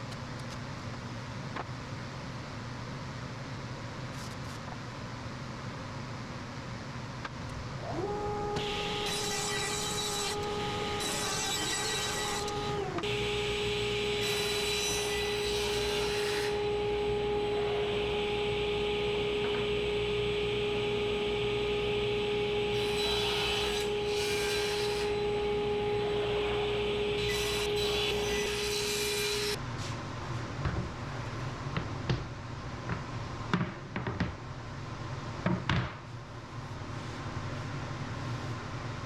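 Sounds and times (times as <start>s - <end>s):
table saw whining: 7.7s - 29.6s
saw rasping through wood: 7.9s - 16.8s, 22.7s - 29.6s.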